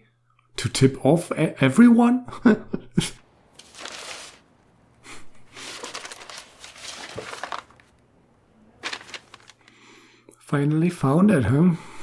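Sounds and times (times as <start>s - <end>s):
paper rustling and crinkling: 3.2s - 9.8s.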